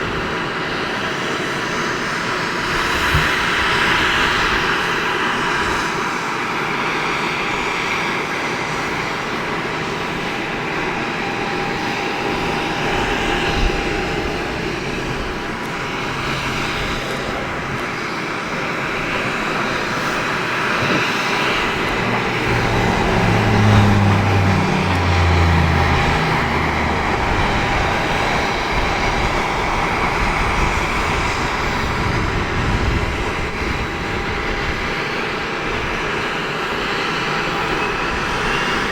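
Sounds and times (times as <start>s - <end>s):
turboprop engines running: 0.0s - 38.9s
low rumble: 21.4s - 29.6s.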